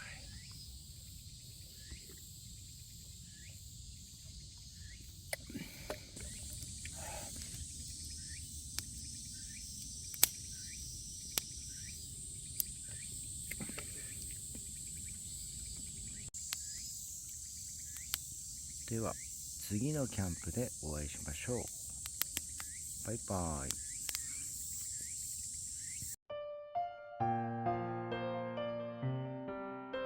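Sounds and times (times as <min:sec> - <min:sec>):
crickets chirping: 0:00.0 - 0:26.2
sharp clicks: 0:21.6 - 0:22.8.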